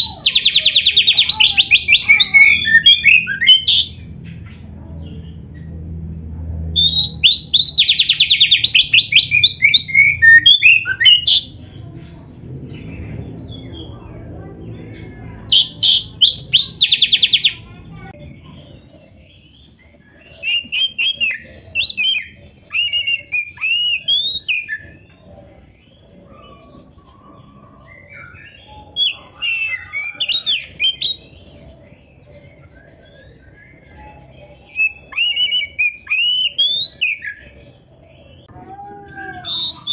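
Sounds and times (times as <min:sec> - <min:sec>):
magpie-robin singing: 0:00.0 - 0:39.9.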